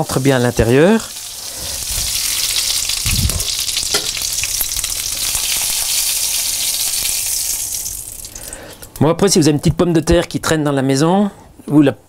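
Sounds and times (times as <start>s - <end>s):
meat sizzling in a frying pan: 0.0s - 9.0s.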